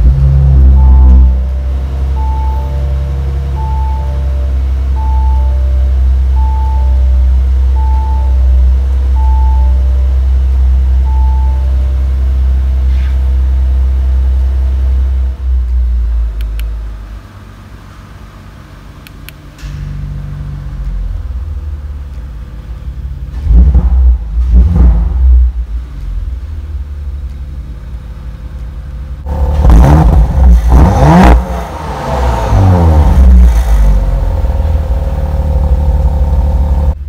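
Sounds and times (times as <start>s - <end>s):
car engine idling: 0.0s - 37.0s
two-tone warning chime: 0.8s - 10.1s.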